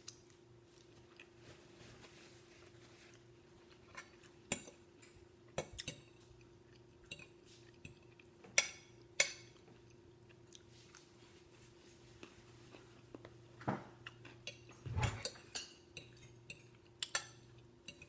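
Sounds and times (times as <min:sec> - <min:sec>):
faint chewing: 0:00.0 - 0:15.4
faint steady hum: 0:00.0 - 0:18.0.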